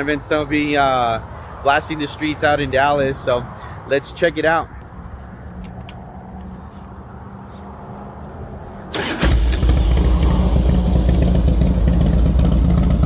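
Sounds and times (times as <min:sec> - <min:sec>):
motorcycle engine running: 0:09.2 - 0:13.0.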